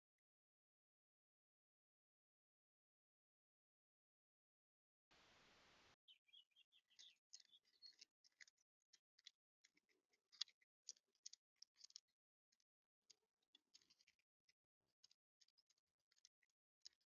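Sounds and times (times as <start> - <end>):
small birds chipping and twittering: 5.2 - 17.0.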